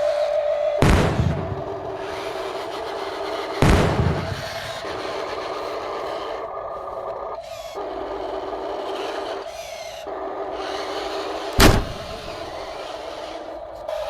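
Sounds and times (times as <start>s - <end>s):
electric gear motors whining: 0.0s - 14.0s
loud thump: 0.8s - 1.6s, 11.6s - 12.3s.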